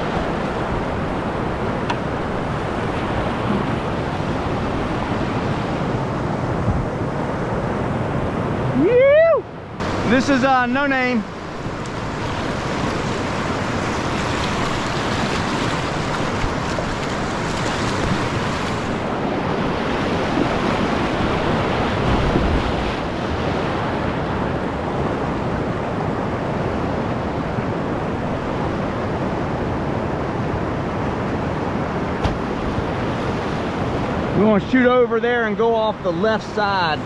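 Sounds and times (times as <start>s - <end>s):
whitewater rapids rushing: 9.8s - 24.7s.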